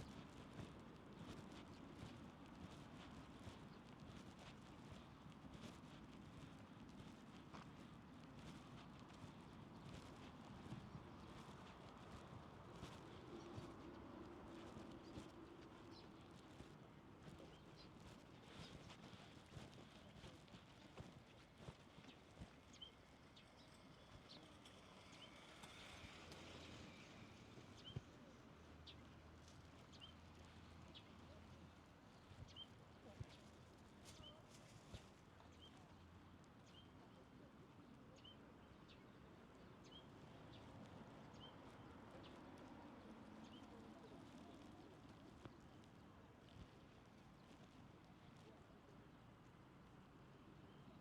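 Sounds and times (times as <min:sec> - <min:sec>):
footsteps on a path: 0:00.0 - 0:23.4, 0:32.1 - 0:36.0, 0:39.8 - 0:47.8
low background murmur: 0:00.0 - 0:51.0.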